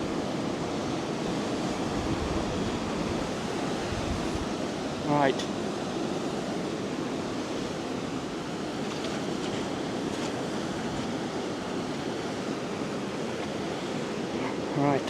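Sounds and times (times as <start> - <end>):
wind on microphone: 0.0 - 5.0
sea waves washing on shore: 0.0 - 15.0.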